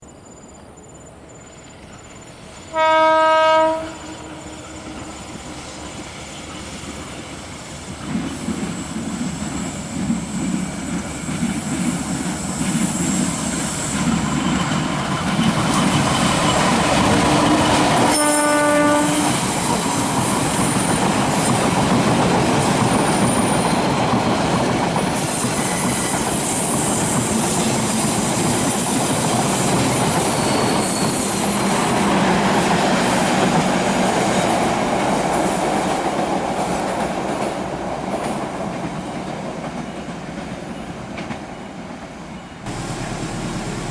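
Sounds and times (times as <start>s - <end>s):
train horn blast: 2.7s - 5.1s, 18.0s - 19.6s
train wheels clacking and rumbling: 4.7s - 18.2s, 18.9s - 43.9s.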